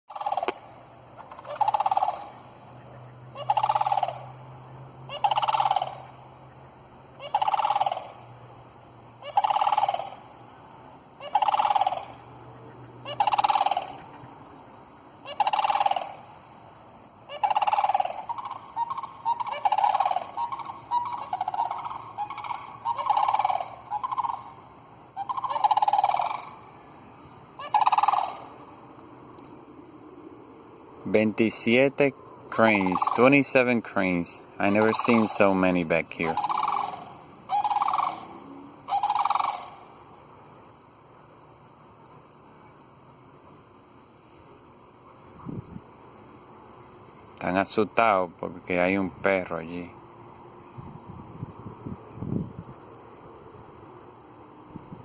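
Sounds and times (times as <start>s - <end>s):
cranes rolling rattling calls: 0.1s - 29.8s, 31.1s - 40.4s.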